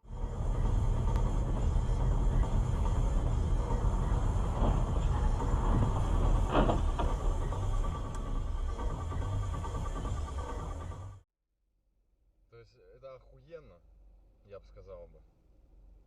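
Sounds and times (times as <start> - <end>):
vehicle engine and road noise: 0.0 - 11.2.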